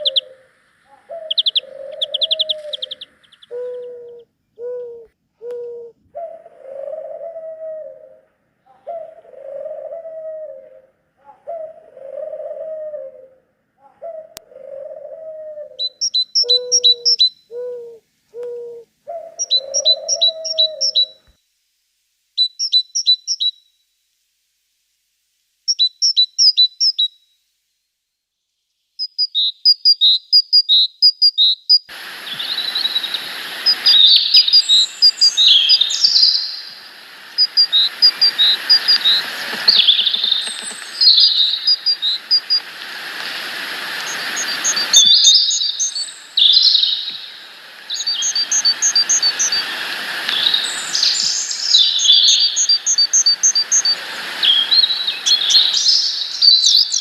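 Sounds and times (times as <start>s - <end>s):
outdoor hiss: 0.0s - 13.8s, 14.7s - 30.8s, 31.4s - 57.0s
dove cooing: 0.0s - 21.2s, 33.1s - 45.3s
songbirds chirping: 0.0s - 21.3s, 28.1s - 57.0s.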